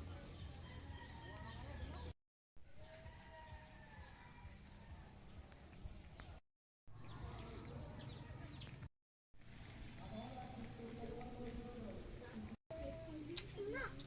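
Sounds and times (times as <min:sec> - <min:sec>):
small birds chirping: 0:05.3 - 0:08.9.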